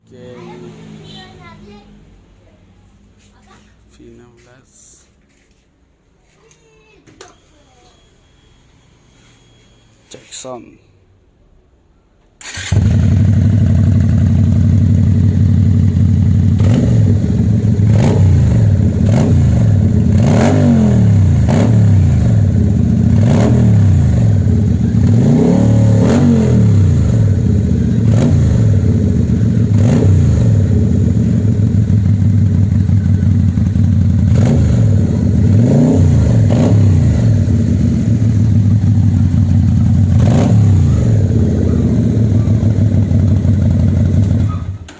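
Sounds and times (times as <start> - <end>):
motorcycle engine idling and revving: 12.4 - 44.9.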